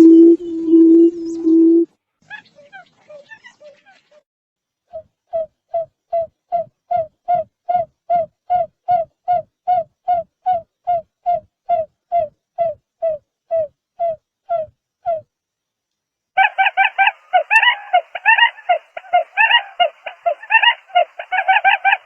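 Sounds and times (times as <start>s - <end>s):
buttonquail low hooting call: 16.4s - 22.0s.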